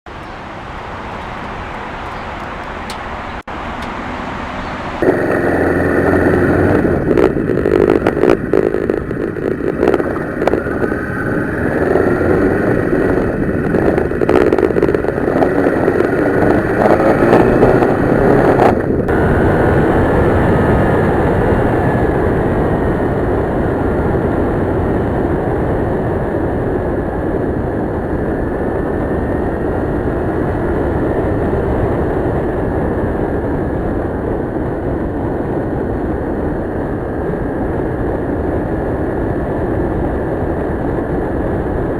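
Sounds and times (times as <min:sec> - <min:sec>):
motorcycle engine under way: 0:00.1 - 0:27.0
wind noise on microphone: 0:00.1 - 0:41.9.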